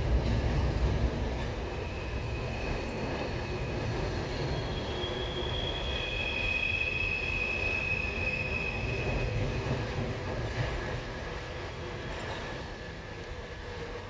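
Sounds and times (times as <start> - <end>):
high wheel squeals: 1.7 - 9.9.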